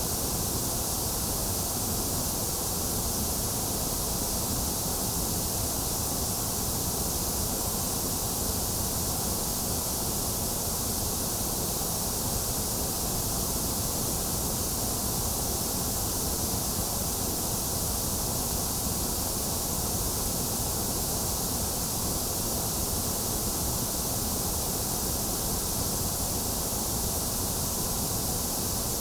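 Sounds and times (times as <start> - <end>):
steady white noise hiss: 0.0 - 29.0.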